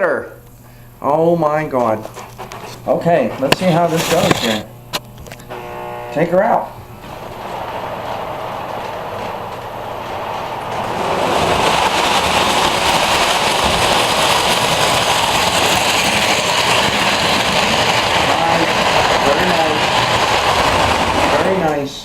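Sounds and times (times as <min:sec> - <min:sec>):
model train rumbling along track: 0:05.5 - 0:22.0.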